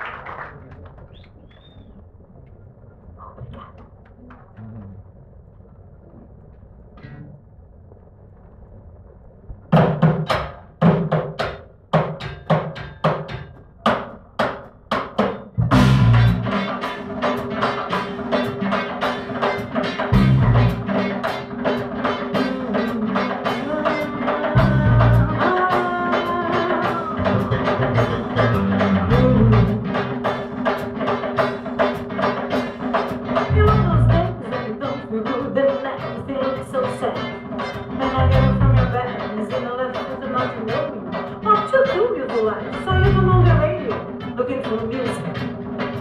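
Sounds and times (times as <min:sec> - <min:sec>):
drums and percussion beat: 0:09.7 - 0:46.0
heavy bass notes: 0:15.5 - 0:23.8, 0:24.5 - 0:25.7, 0:26.5 - 0:30.5, 0:33.4 - 0:34.4, 0:38.0 - 0:39.0, 0:42.9 - 0:43.9.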